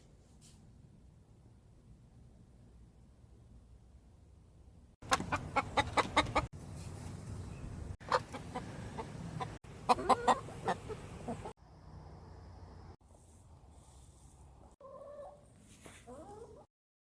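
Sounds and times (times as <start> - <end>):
chickens clucking: 5.0 - 6.5, 8.0 - 11.6, 14.8 - 16.7.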